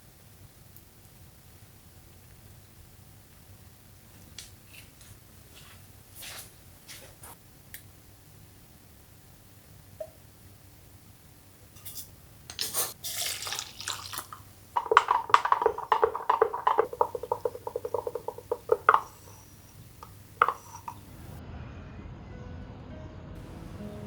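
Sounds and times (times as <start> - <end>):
ringing taps: 14.8 - 21.2.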